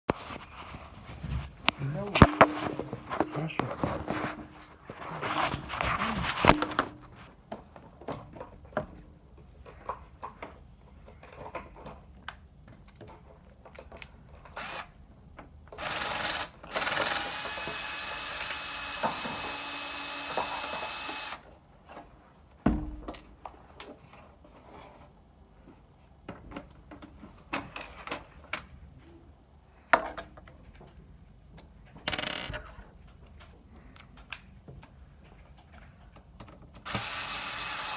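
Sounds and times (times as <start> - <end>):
electric screwdriver running: 14.6 - 14.9, 15.8 - 21.4, 36.9 - 37.9.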